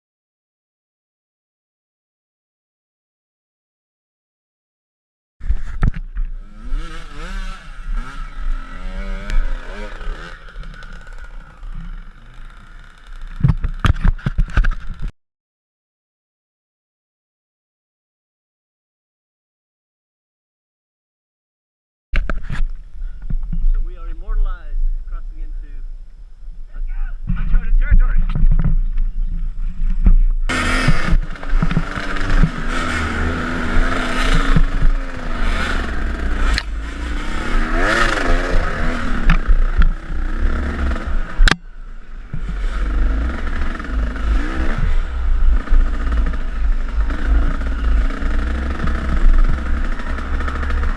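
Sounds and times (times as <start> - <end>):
dirt bike engine idling: 5.5 - 14.2, 27.6 - 50.9
sharp knocks and clatters: 13.2 - 15.1, 27.3 - 33.1.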